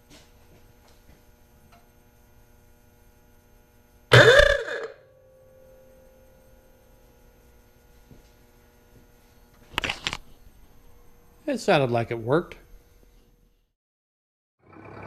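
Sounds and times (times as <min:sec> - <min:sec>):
ah-oo-gah car horn: 0:04.1 - 0:05.0.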